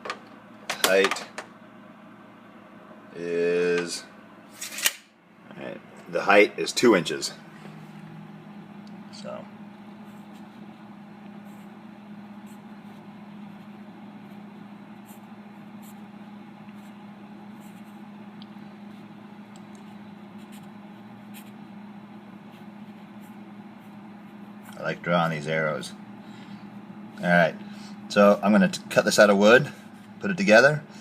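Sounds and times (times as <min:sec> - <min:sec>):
low hum: 0:01.5 - 0:31.0
pen scratching on paper: 0:11.4 - 0:11.7, 0:12.4 - 0:16.1, 0:16.7 - 0:18.0, 0:20.4 - 0:21.7.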